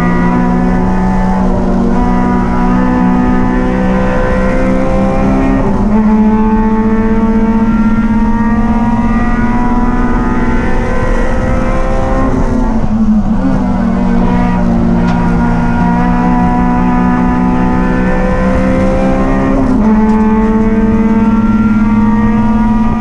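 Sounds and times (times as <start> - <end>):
race car engine at high revs: 0.0 - 23.0.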